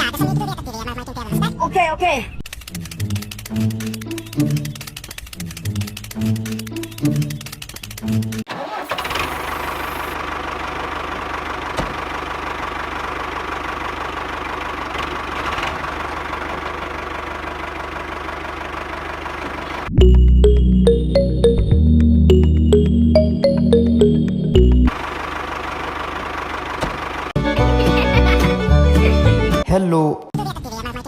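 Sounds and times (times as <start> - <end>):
small engine running: 2.5 - 19.9, 24.9 - 28.2
music: 20.0 - 24.9, 27.4 - 29.7.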